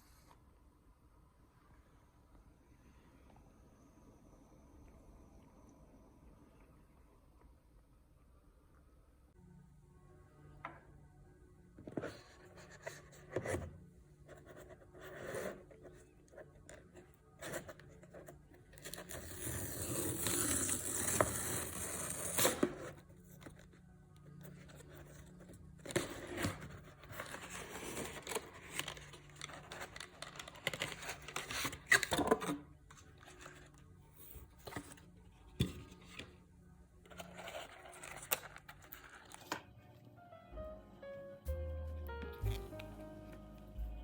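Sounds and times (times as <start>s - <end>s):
packaging rustling and scraping: 14.3s - 23.8s, 24.4s - 36.4s, 37.0s - 39.7s.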